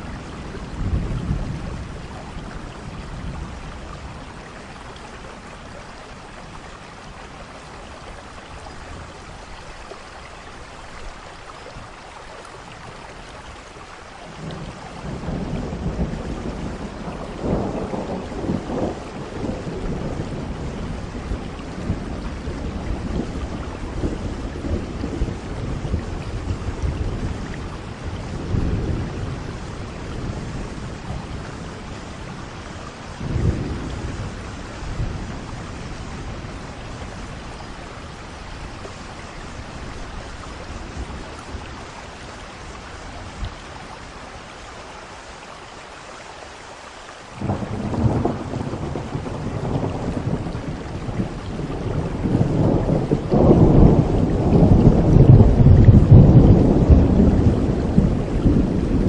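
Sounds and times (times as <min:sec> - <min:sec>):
thunder rumbling: 0:00.0 - 0:04.6, 0:14.4 - 0:43.5, 0:47.4 - 0:59.0
steady rain: 0:00.0 - 0:59.0.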